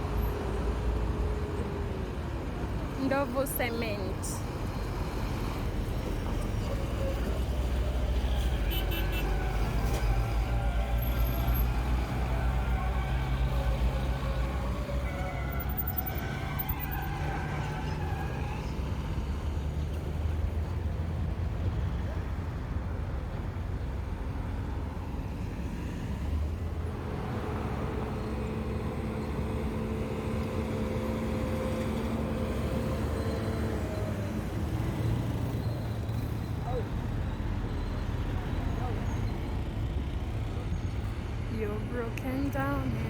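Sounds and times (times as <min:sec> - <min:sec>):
truck engines rumbling: 0:00.0 - 0:43.0.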